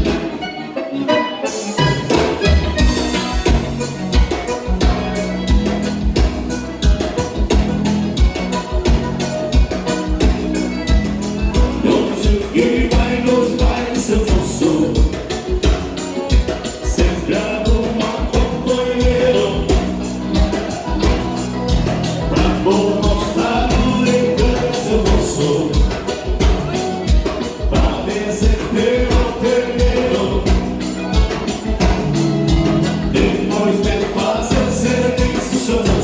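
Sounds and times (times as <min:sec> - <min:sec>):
accordion-led dance music: 0:00.0 - 0:36.0
person singing: 0:11.5 - 0:36.0.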